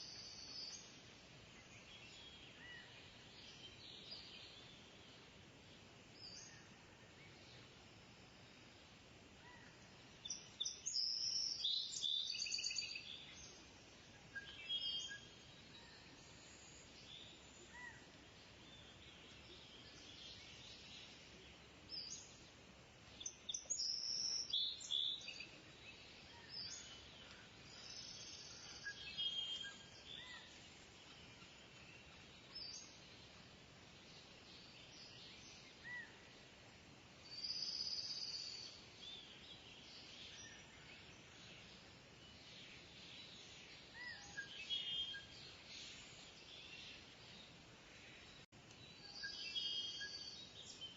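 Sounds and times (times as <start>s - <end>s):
faint bird chirps: 0.0s - 5.3s, 9.4s - 22.5s, 23.1s - 36.3s, 37.2s - 50.9s
faint hiss: 0.0s - 50.9s.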